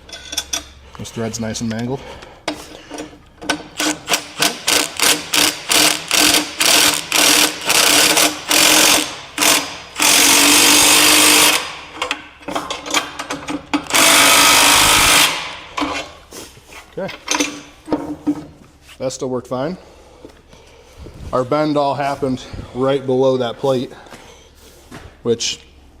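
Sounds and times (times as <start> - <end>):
cordless impact wrench bursts: 3.4 - 16.1.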